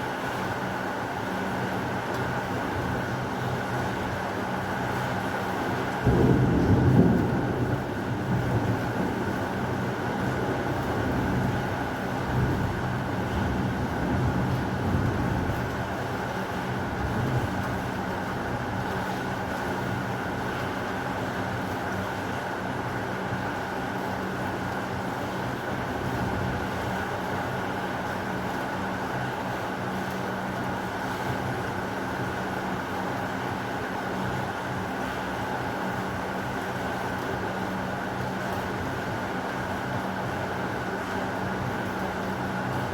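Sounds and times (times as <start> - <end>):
thunder rumbling: 6.0 - 9.6.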